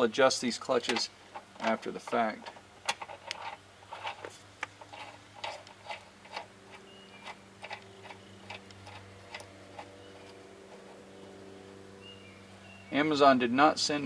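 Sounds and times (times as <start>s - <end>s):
steady low hum: 0.0s - 14.0s
metal parts clicking and knocking: 0.7s - 11.0s.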